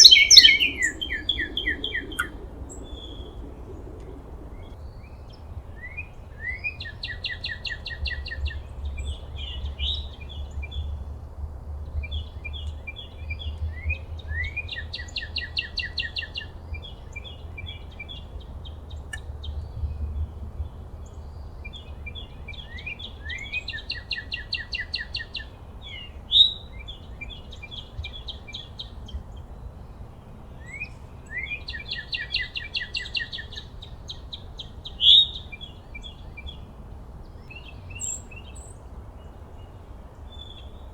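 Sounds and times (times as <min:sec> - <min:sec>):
faint outdoor hiss: 0:00.0 - 0:40.9
songbird singing: 0:00.0 - 0:40.9
low rumble: 0:00.5 - 0:04.8.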